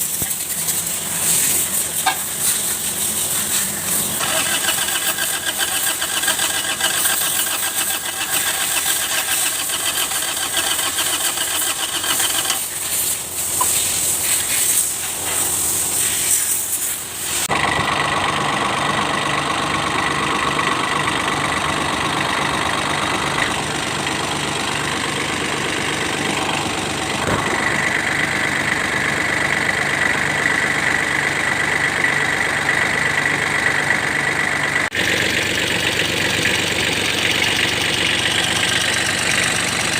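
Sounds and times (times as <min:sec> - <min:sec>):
diesel engine running: 0:00.0 - 0:39.9
diesel engine cranking on starter: 0:00.2 - 0:14.2, 0:17.4 - 0:39.9.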